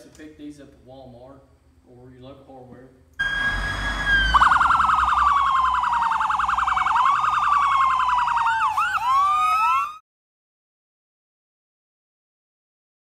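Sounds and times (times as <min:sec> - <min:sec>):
emergency vehicle sirens: 0:03.2 - 0:10.0.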